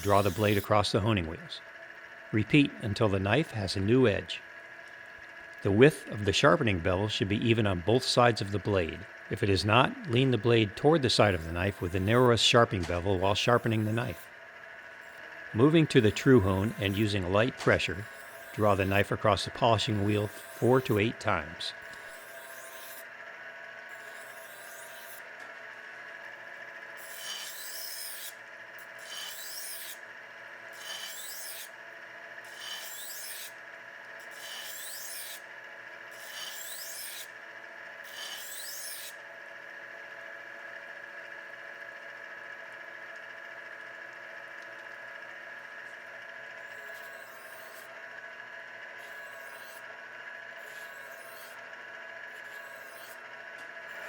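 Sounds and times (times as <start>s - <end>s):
knife blade hissing on wheel: 0.0s - 0.8s, 11.1s - 12.3s, 13.2s - 14.3s, 15.0s - 17.2s, 17.8s - 19.2s, 19.8s - 21.0s, 21.8s - 23.0s, 23.9s - 25.2s, 27.0s - 30.0s, 30.7s - 31.7s, 32.4s - 33.6s, 34.2s - 35.4s, 36.1s - 37.3s, 38.0s - 39.2s, 46.6s - 47.9s, 49.0s - 49.8s, 50.6s - 51.6s, 52.3s - 53.2s
knife sharpener motor humming: 0.0s - 54.0s.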